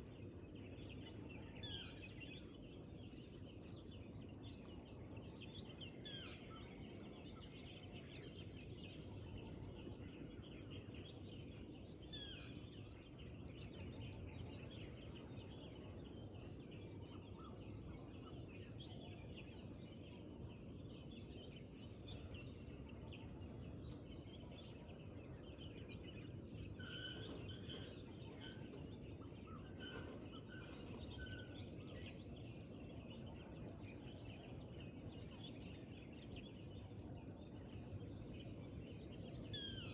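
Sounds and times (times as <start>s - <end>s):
distant songbirds chirping: 0.0s - 39.9s
bird calling short notes: 39.6s - 39.9s.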